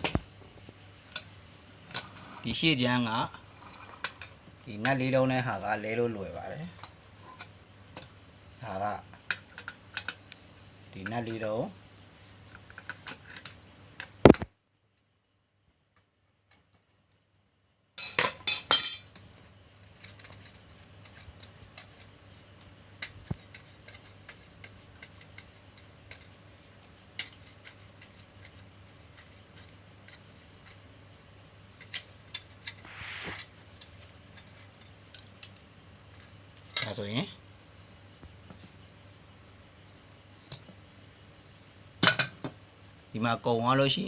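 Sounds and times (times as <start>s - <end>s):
metal parts and tools clinking: 18.0s - 19.2s.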